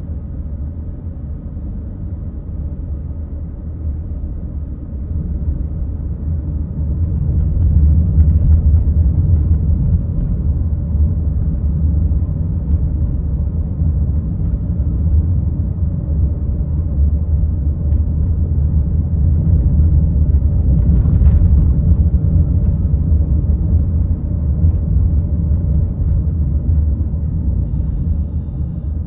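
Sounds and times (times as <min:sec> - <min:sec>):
car road and engine noise: 0:00.0 - 0:29.0.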